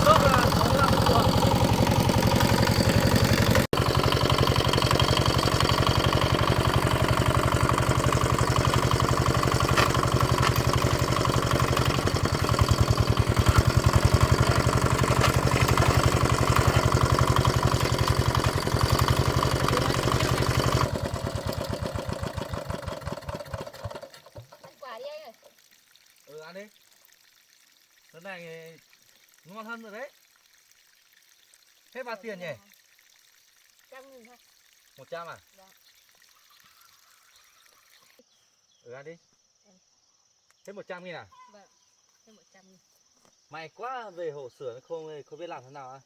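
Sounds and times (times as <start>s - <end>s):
walk-behind tractor engine running: 0.0s - 24.8s.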